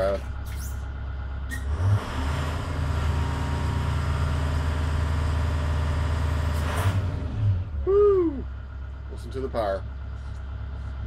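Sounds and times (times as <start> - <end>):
bus diesel engine revving: 1.4 - 8.4.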